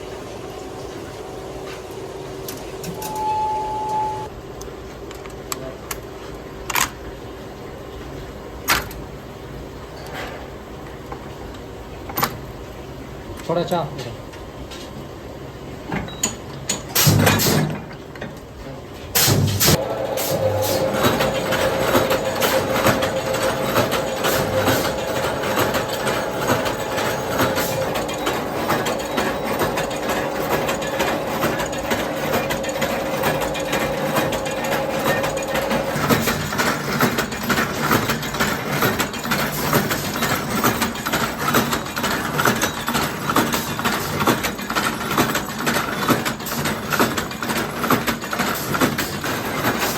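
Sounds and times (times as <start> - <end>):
machine hum: 0.0 - 4.3, 19.2 - 39.6
rapid machine clatter: 19.2 - 49.9.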